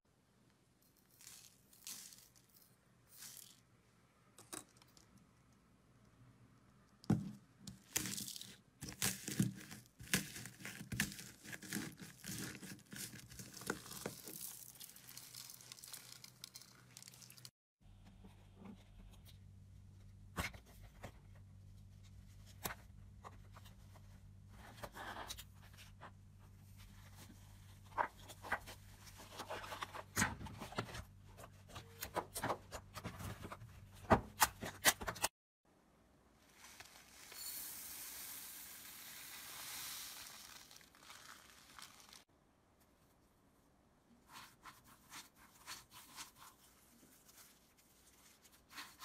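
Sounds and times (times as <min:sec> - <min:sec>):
soft hiss: 0:36.3 - 0:43.2.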